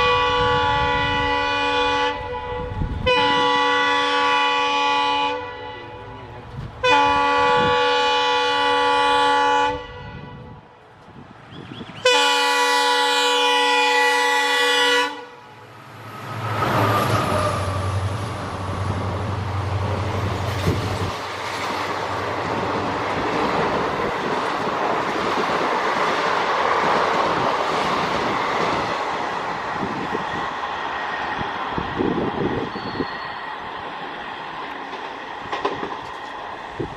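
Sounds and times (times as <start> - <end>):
train horn blast: 0.0 - 10.8, 12.0 - 15.7
train coaches roaring past: 0.0 - 36.9.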